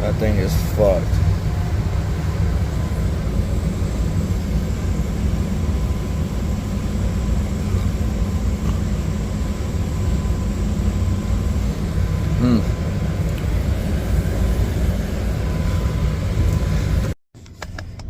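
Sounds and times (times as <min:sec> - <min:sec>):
air conditioner humming: 0:00.0 - 0:17.2.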